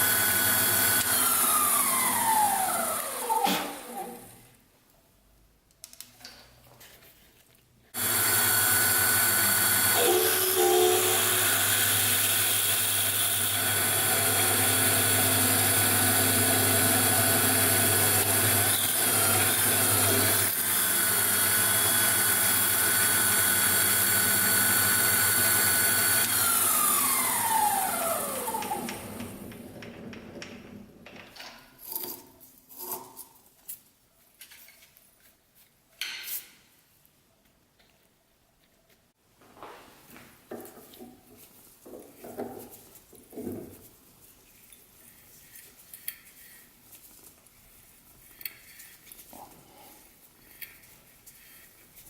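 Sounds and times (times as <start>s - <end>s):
drill press whining: 0.0s - 4.4s, 8.0s - 30.5s.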